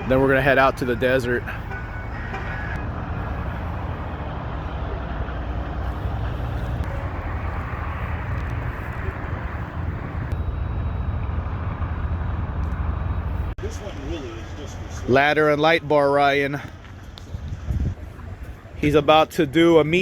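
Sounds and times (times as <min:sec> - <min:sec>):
low rumble of motor vehicles: 0:00.0 - 0:20.0.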